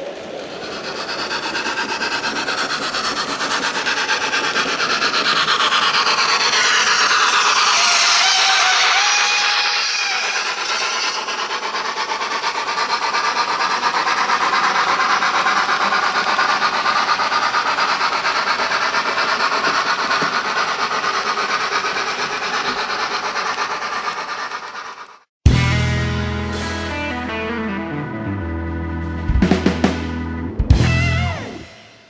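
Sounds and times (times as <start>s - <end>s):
model train rumbling and clattering: 0.3s - 25.2s.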